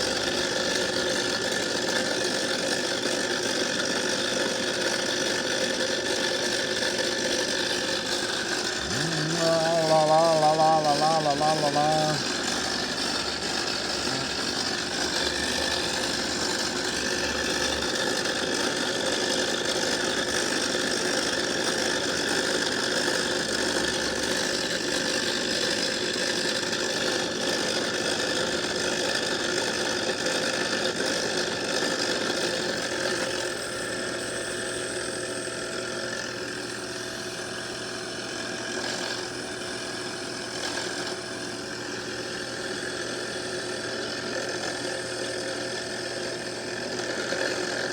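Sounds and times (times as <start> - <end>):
lathe whirring: 4.8 - 21.8, 32.3 - 47.9.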